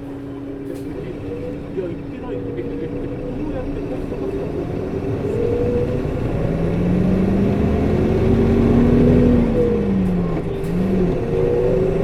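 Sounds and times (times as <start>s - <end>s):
diesel bus engine accelerating: 0.0s - 12.0s.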